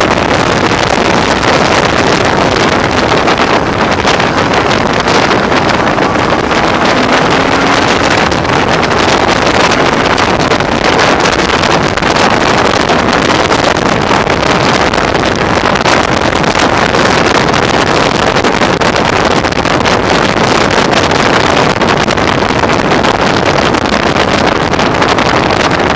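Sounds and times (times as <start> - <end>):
motorcycle engine: 0.0 - 16.8
wind buffeting microphone: 0.0 - 25.9.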